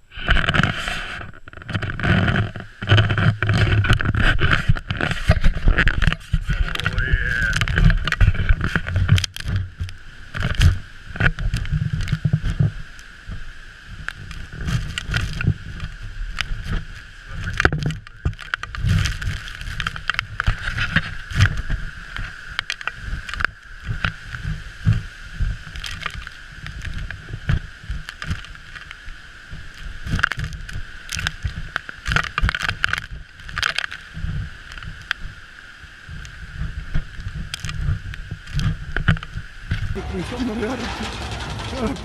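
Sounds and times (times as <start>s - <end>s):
storm wind buffeting microphone: 1.7s - 25.8s
heavy seas pounding ship: 40.0s - 42.0s.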